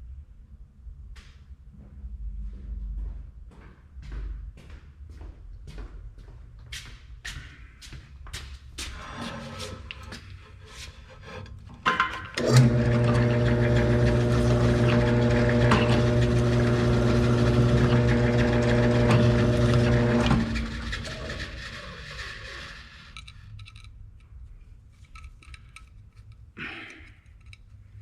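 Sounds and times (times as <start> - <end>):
electric drill motor humming: 12.4 - 21.7.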